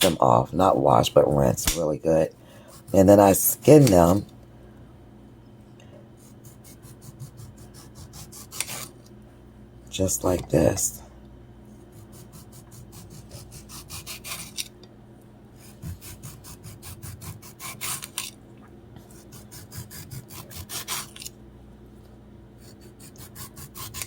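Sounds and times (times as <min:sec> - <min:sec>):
knife scraping tomato skin: 0:01.6 - 0:04.2, 0:06.2 - 0:09.0, 0:11.9 - 0:14.7, 0:15.6 - 0:18.4, 0:19.1 - 0:21.3, 0:22.6 - 0:24.0.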